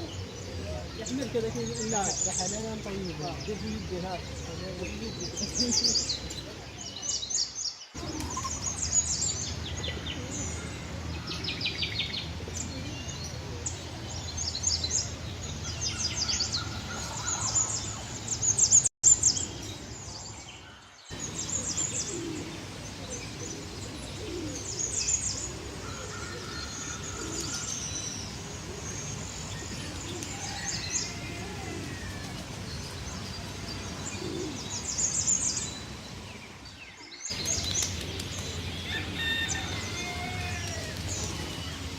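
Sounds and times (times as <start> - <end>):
caged birds chirping and trilling: 0.0 - 41.9.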